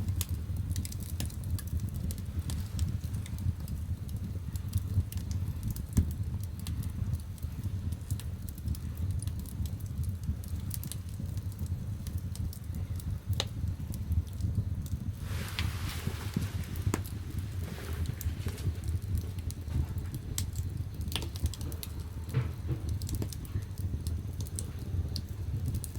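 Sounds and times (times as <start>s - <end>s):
fire crackling and popping: 0.0s - 25.9s
fire rumbling: 0.0s - 25.9s
soft hiss: 12.7s - 25.9s.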